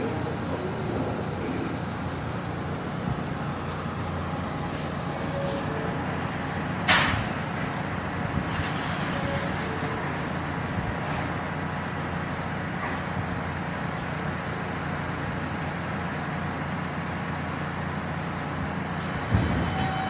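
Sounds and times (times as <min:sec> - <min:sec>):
vehicle rumble: 0:00.0 - 0:20.0
air brake hiss: 0:06.8 - 0:07.5.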